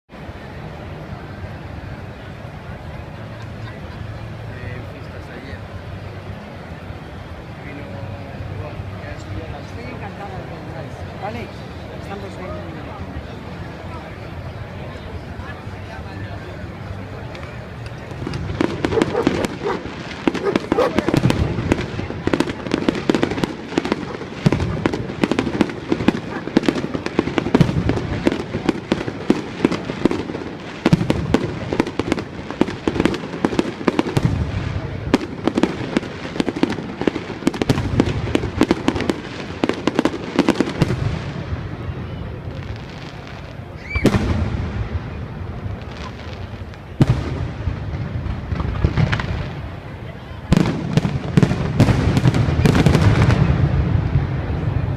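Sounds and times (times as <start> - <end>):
fireworks bangs and crackling: 0.2 - 54.9
firework whistle: 43.4 - 44.9.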